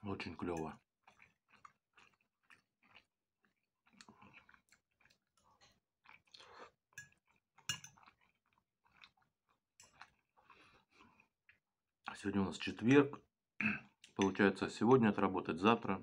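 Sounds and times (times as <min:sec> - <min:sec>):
man chewing pasta: 0:00.8 - 0:11.6.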